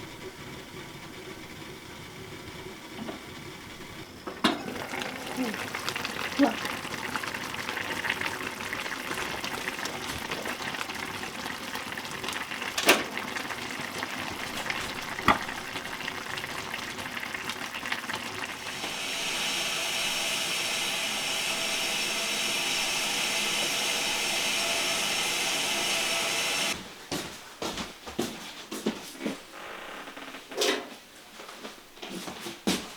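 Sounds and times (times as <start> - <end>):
food hissing while cooking: 13.4 - 26.8.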